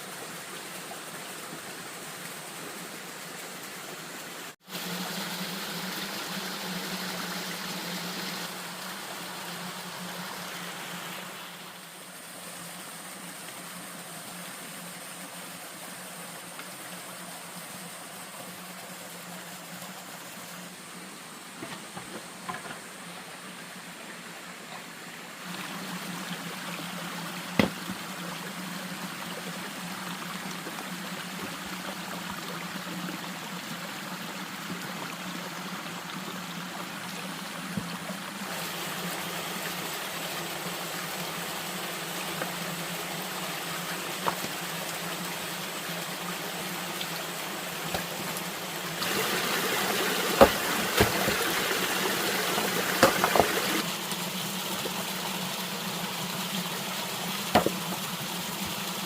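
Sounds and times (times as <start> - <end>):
running water: 0.0 - 59.0
sharp knocks: 27.6 - 28.0, 53.0 - 53.6, 57.5 - 58.0.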